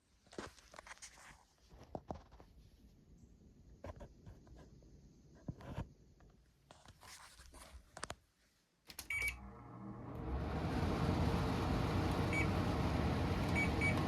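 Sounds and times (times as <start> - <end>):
air conditioner humming: 9.1 - 14.0.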